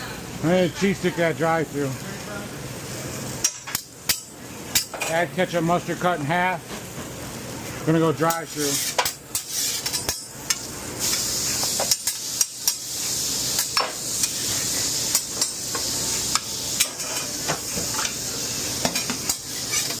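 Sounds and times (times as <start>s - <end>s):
food sizzling on a grill: 0.0s - 20.0s
metal utensils and pans clicking: 3.4s - 5.2s, 8.3s - 12.8s, 15.1s - 18.2s, 18.8s - 20.0s.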